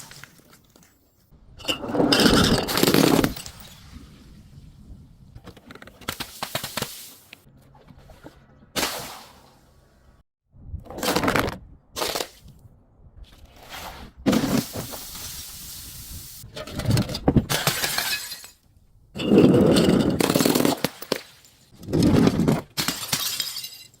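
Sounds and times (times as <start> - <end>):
glass bottles shattering: 1.6 - 3.9, 17.5 - 18.6, 22.7 - 24.0.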